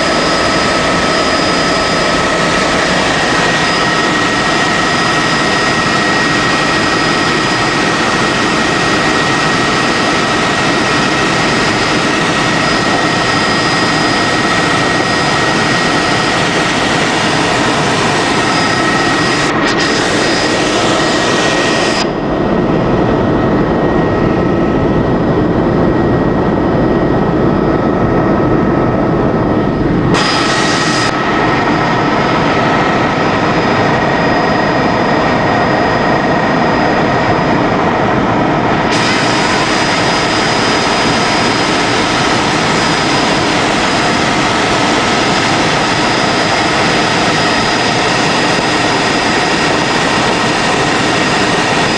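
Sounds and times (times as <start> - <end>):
helicopter rotor and engine: 0.0 - 51.9
helicopter turbine whine: 0.0 - 51.9.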